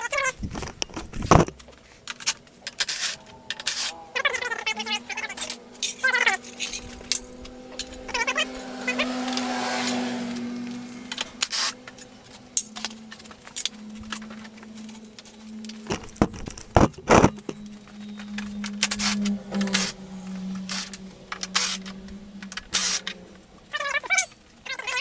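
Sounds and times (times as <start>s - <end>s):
steady low hum: 11.0s - 23.8s
tools clicking on plastic panels: 15.9s - 17.6s.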